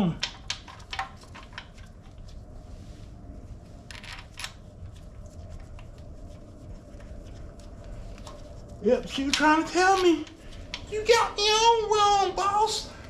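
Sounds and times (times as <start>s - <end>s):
tools handled ticking and rustling: 0.0s - 2.4s, 6.9s - 11.2s
low steady hum: 0.0s - 13.0s.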